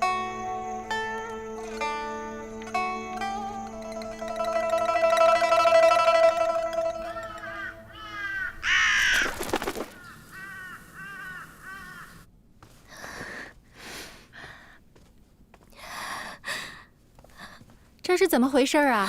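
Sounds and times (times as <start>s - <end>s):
plucked zither note: 0.0s - 8.3s
crows cawing: 6.2s - 12.3s.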